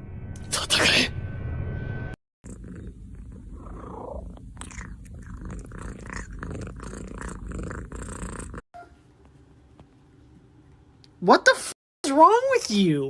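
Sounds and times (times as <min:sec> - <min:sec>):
cat purring: 0:02.4 - 0:08.6.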